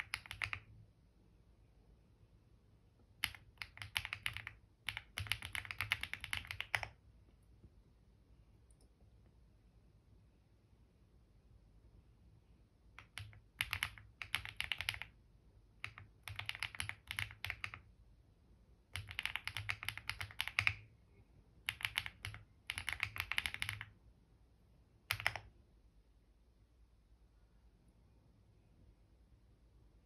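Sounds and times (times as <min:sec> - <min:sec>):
typing on computer keyboard: 0:00.0 - 0:00.8, 0:03.1 - 0:07.0, 0:12.9 - 0:17.9, 0:18.9 - 0:20.9, 0:21.6 - 0:24.0, 0:25.0 - 0:25.6.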